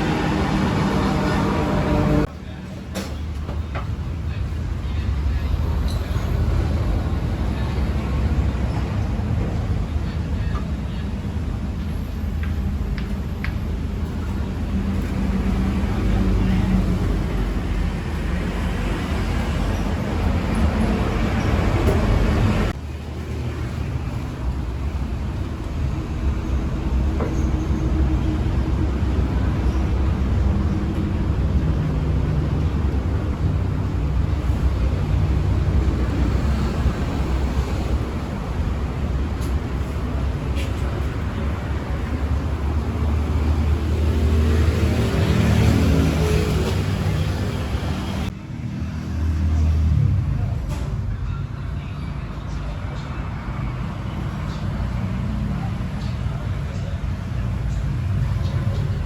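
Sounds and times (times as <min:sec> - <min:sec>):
passing motorbikes: 0:00.0 - 0:02.3
city street traffic: 0:00.0 - 0:59.0.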